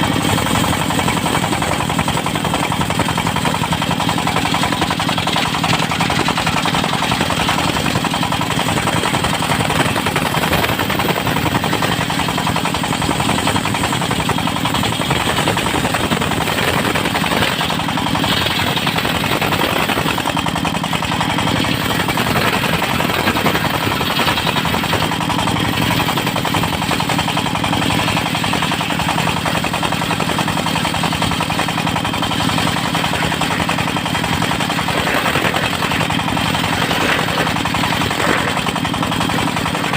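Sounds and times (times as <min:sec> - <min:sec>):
sawmill engine chugging: 0:00.0 - 0:39.9.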